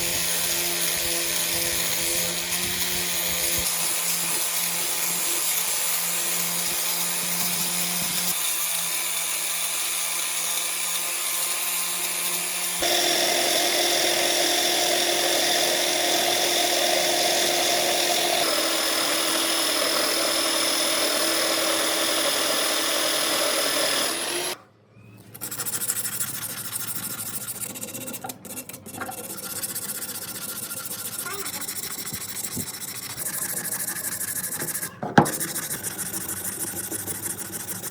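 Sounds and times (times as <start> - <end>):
power tool running: 0.0 - 24.6, 28.8 - 37.9
rough machine sound: 12.7 - 24.6, 25.6 - 37.9.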